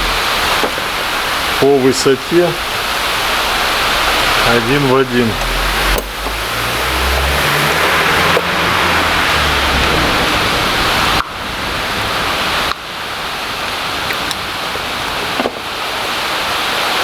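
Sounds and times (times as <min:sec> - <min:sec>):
low rumble: 0:00.0 - 0:12.7
continuous rain hiss: 0:00.0 - 0:17.0.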